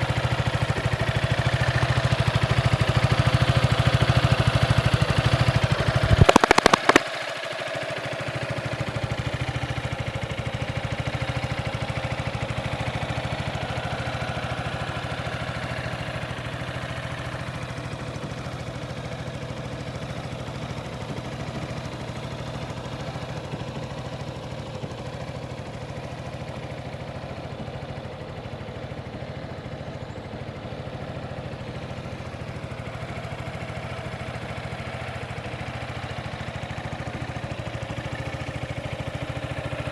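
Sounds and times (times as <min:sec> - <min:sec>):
scooter engine idling: 0:00.0 - 0:39.9
sharp clicks: 0:06.0 - 0:07.0.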